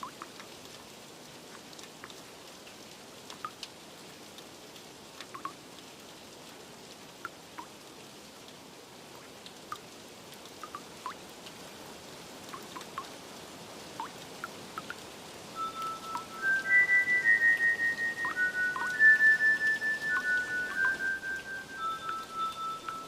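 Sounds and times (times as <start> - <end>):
steady rain: 0.0 - 23.0
single water drips: 5.2 - 5.6, 9.2 - 9.9, 10.5 - 11.2, 12.5 - 13.1, 14.0 - 15.0, 15.6 - 23.0
soft music: 15.6 - 23.0.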